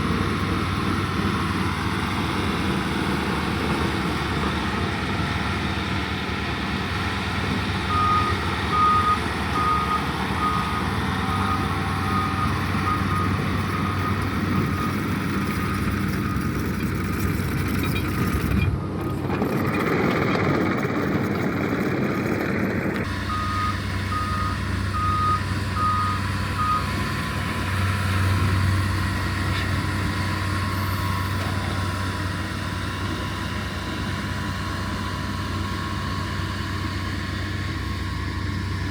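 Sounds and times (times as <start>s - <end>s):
heavy machine engine running: 0.0s - 38.9s
backup alarm beeping: 23.2s - 26.9s.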